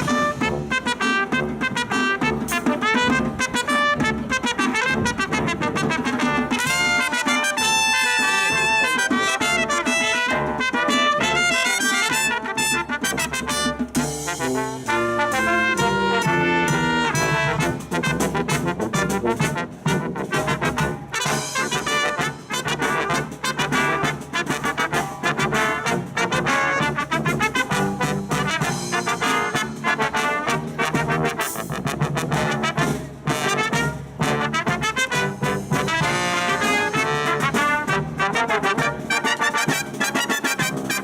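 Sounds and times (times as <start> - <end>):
brass band playing: 0.0 - 41.0.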